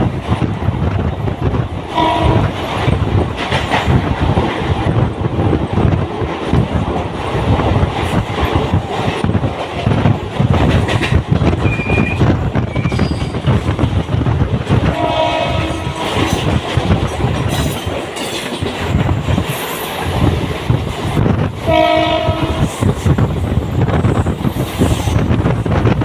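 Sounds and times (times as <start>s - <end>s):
train wheels rumbling on track: 0.0s - 26.0s
train horn blast: 1.9s - 2.6s, 14.8s - 16.2s, 21.6s - 22.8s
high wheel squeal: 11.6s - 13.4s.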